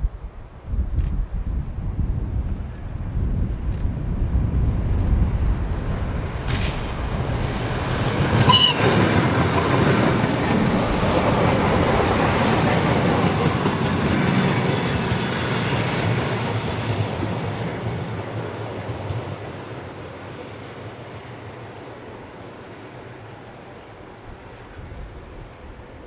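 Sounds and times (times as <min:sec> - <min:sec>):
train wheels rushing on rails: 0:02.2 - 0:26.0
clatter over rail joints: 0:05.0 - 0:17.4.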